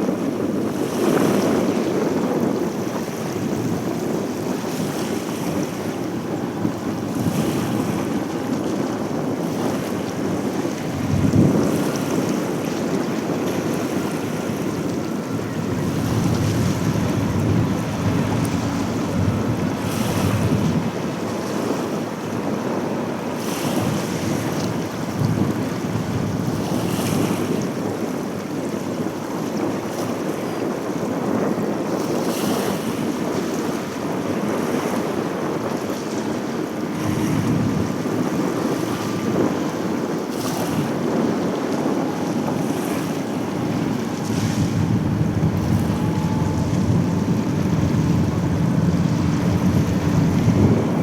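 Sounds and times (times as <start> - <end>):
wind buffeting microphone: 0.0 - 51.0
steady low rumble: 14.7 - 21.1, 42.4 - 51.0.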